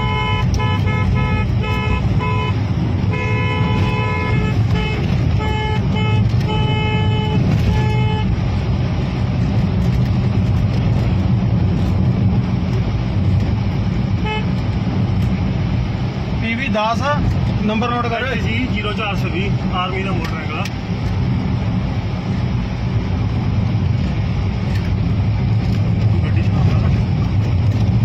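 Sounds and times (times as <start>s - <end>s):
car horn honking: 0.0s - 8.4s, 14.2s - 14.6s
vehicle engine and road rumble: 0.0s - 28.0s.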